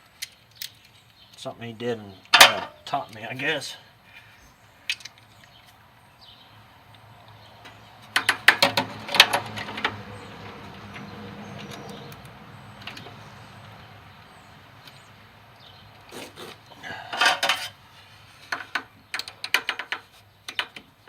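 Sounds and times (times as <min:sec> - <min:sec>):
hand tools clinking: 0:16.9 - 0:17.8.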